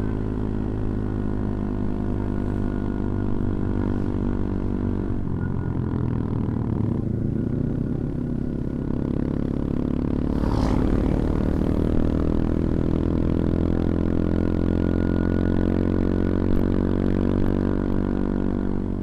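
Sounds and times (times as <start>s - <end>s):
hissing rush: 10.2s - 12.5s.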